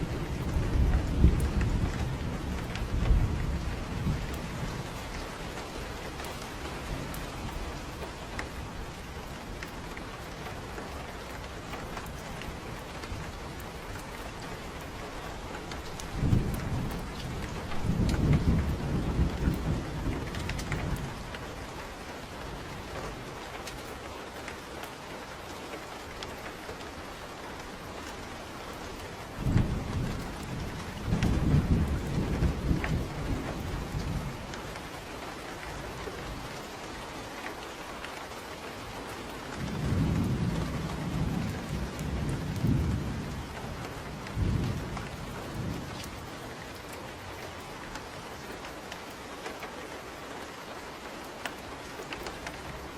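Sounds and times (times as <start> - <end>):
thunder rumbling: 0.0 - 23.6, 27.6 - 36.6, 39.5 - 48.9
steady rain falling: 0.0 - 52.9.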